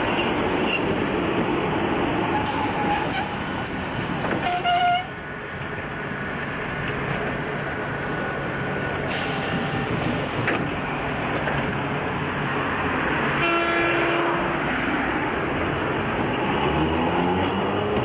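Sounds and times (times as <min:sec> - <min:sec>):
road traffic passing: 0:00.0 - 0:18.0
air brakes hissing: 0:02.3 - 0:04.7, 0:09.1 - 0:10.6.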